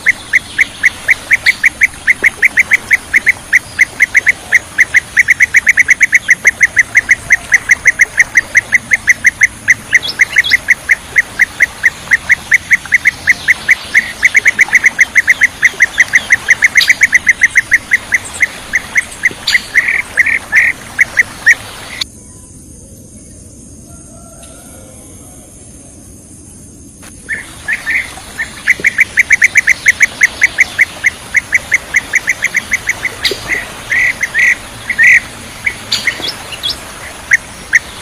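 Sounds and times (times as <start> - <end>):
bee-eater calling: 0.0 - 22.0, 27.0 - 38.0
steady hiss: 25.7 - 38.0.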